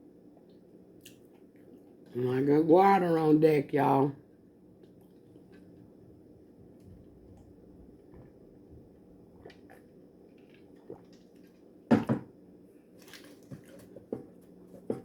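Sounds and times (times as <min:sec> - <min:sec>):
throaty gulp: 0:10.8 - 0:11.2.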